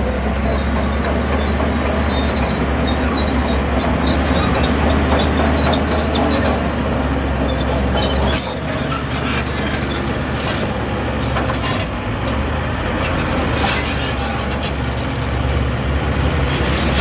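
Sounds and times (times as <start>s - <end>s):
heavy diesel engine humming: 0.0s - 17.0s
knocks and clatter: 0.4s - 12.4s.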